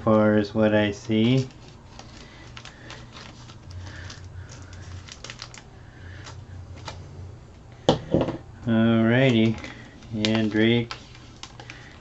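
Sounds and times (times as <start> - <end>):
low steady hum: 0.0 - 12.0
plastic packaging rustling: 0.8 - 7.1, 9.0 - 12.0.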